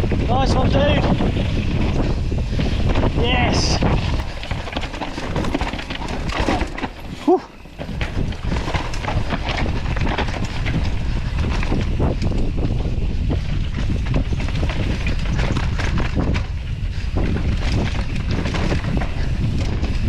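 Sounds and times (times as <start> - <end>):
bike tyres crunching over dirt: 0.0 - 20.0
wind rushing over microphone: 0.0 - 20.0.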